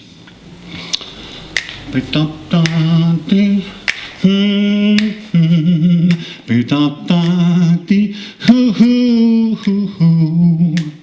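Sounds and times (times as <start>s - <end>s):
finger snaps: 0.9s - 1.9s, 2.6s - 2.9s, 3.9s - 4.2s, 4.9s - 5.2s, 6.0s - 6.3s, 9.6s - 9.9s, 10.6s - 11.0s
man humming: 1.9s - 11.0s.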